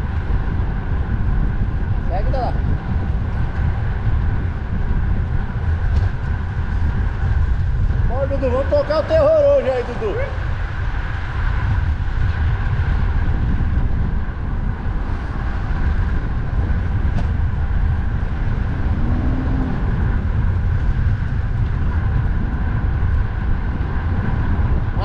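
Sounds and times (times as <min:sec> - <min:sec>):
passing road traffic hum: 0:00.0 - 0:25.0
wind buffeting microphone: 0:00.0 - 0:25.0.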